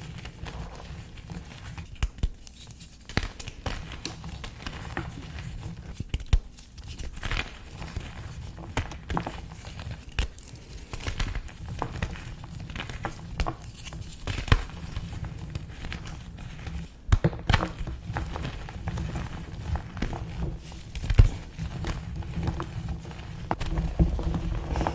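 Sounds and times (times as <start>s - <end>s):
chalk crunching and crumbling: 18.0s - 24.9s.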